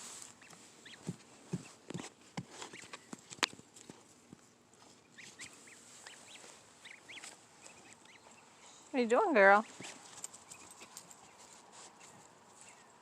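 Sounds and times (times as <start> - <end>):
goslings peeping: 0.2 - 3.2, 5.0 - 8.6.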